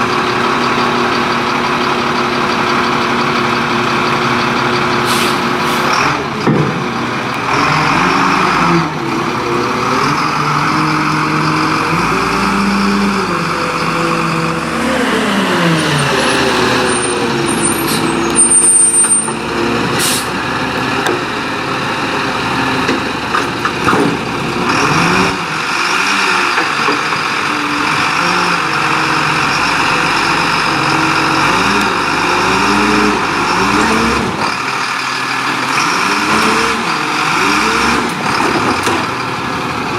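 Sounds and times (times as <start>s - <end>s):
garbage truck diesel engine revving: 0.0s - 39.9s
air brakes hissing: 5.0s - 5.9s, 16.2s - 19.3s, 20.0s - 20.4s
high squeal: 11.9s - 20.3s.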